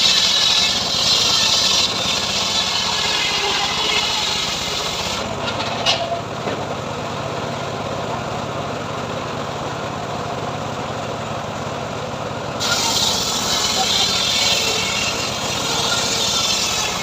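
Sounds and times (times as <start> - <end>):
saw blade hissing through wood: 0.0 - 5.3, 12.6 - 17.0
sawmill engine running: 0.0 - 17.0.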